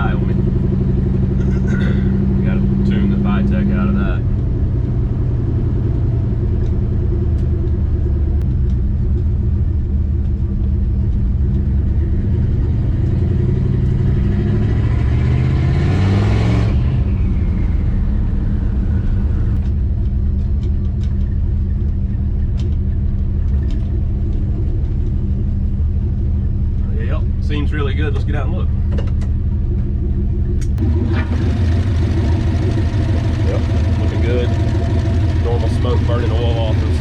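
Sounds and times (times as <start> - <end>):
car engine rumbling: 0.0 - 37.0
turbo whine: 16.6 - 37.0.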